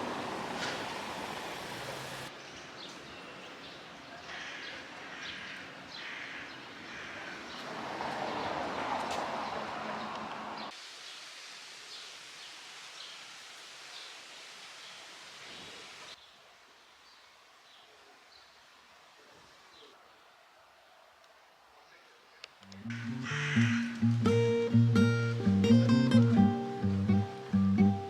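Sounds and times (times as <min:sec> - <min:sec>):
background hiss: 0:00.0 - 0:02.6, 0:10.7 - 0:28.0.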